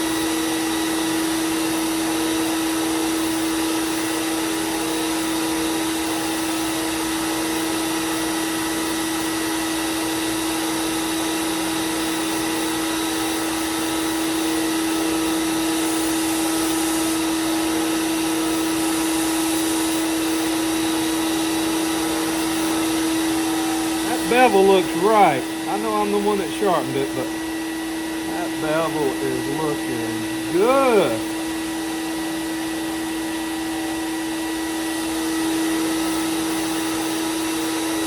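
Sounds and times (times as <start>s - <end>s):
belt sander humming: 0.0s - 33.7s
blade hissing on sanding belt: 14.2s - 27.3s.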